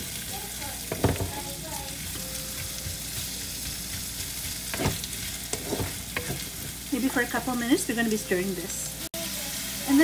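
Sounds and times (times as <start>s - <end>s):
food sizzling in hot oil: 0.0s - 10.0s
wooden spatula scraping a wok: 3.2s - 7.1s.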